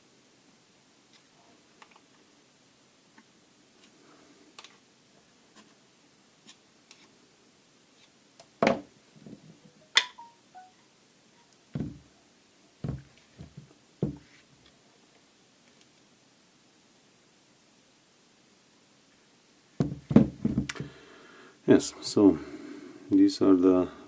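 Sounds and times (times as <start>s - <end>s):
parts knocking on a workbench: 8.6s - 8.9s, 12.8s - 14.2s, 19.8s - 20.9s.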